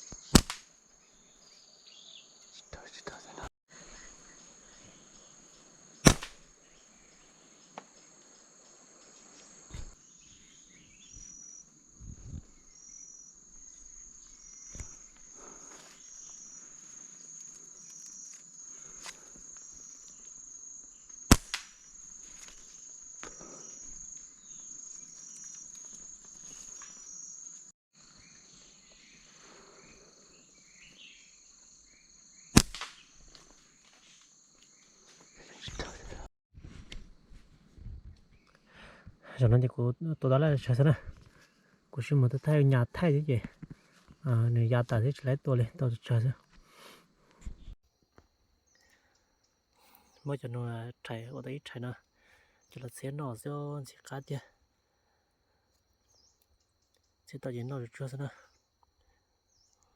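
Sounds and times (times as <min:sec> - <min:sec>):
insects droning: 0:00.0 - 0:59.9
slingshot snapping: 0:00.2 - 0:00.7, 0:06.0 - 0:06.5, 0:21.2 - 0:22.6, 0:32.6 - 0:33.5.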